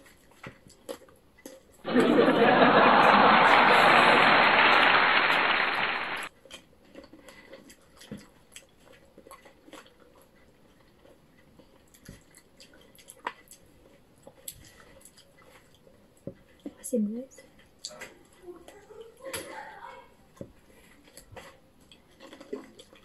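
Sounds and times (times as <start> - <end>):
people chewing cherries: 0.0 - 1.8, 6.3 - 23.0
loud steady hiss: 2.8 - 6.3.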